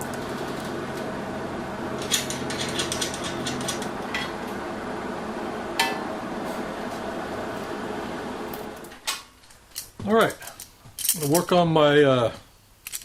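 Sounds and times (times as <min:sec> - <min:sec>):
steady low hum: 0:00.0 - 0:09.0
metal parts clinking: 0:09.7 - 0:11.5, 0:12.8 - 0:13.0.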